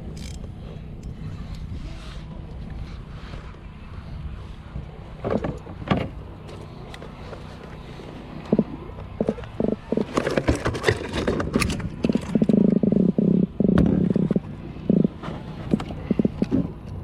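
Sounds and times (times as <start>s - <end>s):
rod and tackle clicks: 0.0s - 1.7s.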